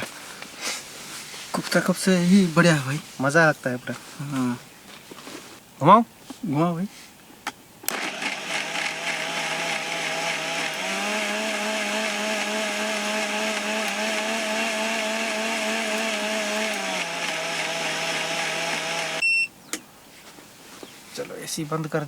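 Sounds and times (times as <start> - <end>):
electric blender running: 7.9 - 19.2.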